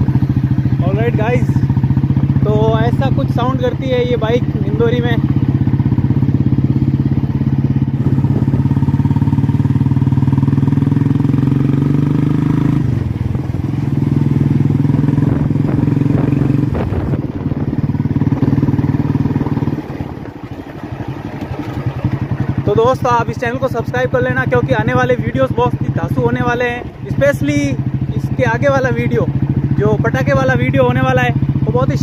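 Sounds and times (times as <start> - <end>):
motorcycle engine pulsing exhaust: 0.0 - 32.0.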